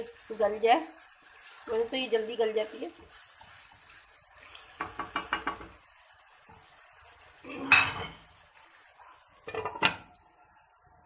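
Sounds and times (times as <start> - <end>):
faint sizzle: 0.0 - 11.0
metal spoon tapping in pot: 4.8 - 5.8
pot lid clattering: 9.5 - 10.0.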